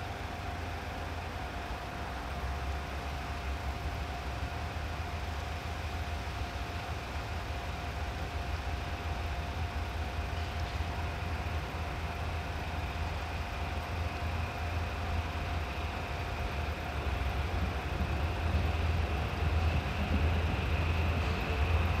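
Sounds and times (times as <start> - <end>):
locomotive engine hum: 0.0 - 22.0.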